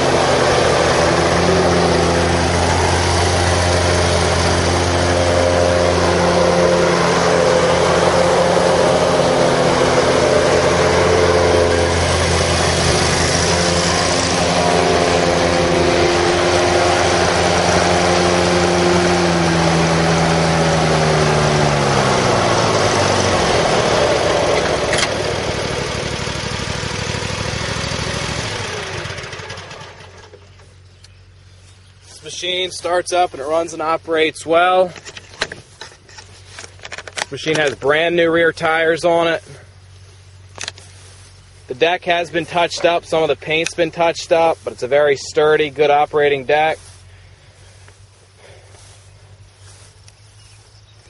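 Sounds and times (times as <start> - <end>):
mower engine running: 0.0 - 51.0.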